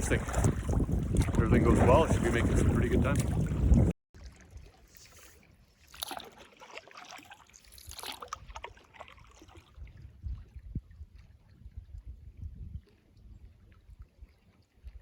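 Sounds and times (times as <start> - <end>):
canoe paddle splashing: 0.0 - 11.5.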